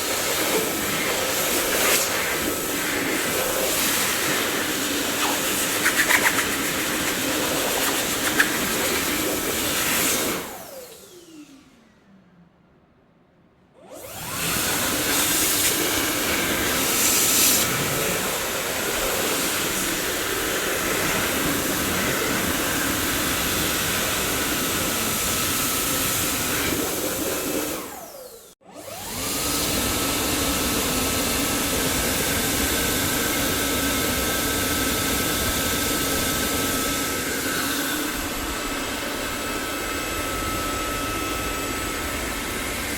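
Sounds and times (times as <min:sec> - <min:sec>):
vacuum cleaner motor running: 0:00.0 - 0:11.9, 0:13.8 - 0:42.9
motor winding down whine: 0:10.4 - 0:12.1.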